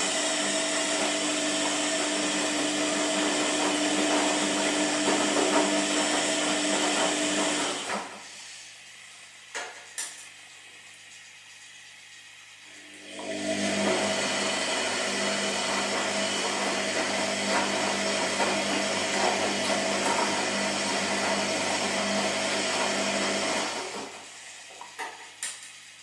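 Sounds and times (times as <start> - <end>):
washing machine motor churning: 0.0 - 8.9, 11.8 - 26.0.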